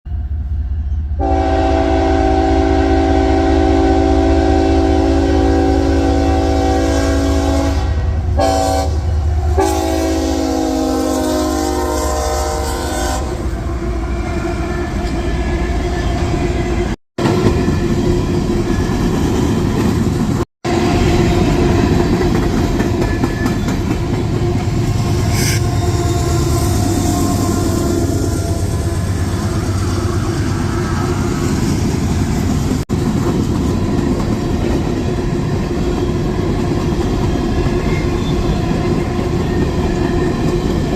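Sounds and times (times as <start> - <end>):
train rumbling over rails: 0.1 - 40.9
train horn blasts: 1.2 - 17.0, 23.1 - 31.2.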